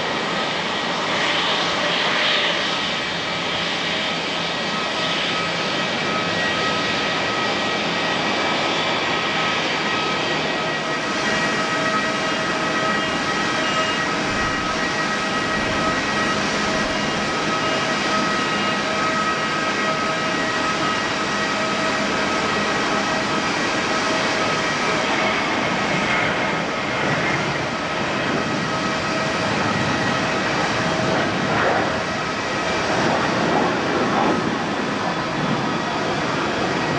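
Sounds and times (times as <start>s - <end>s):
jet engines roaring with whine: 0.0s - 36.9s.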